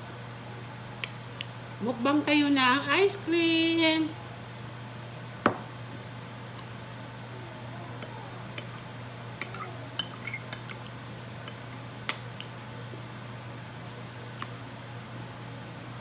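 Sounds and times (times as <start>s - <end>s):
steady low hum: 0.0s - 16.0s
spoon clinking against dish: 8.0s - 8.8s, 9.4s - 10.8s, 11.4s - 12.4s.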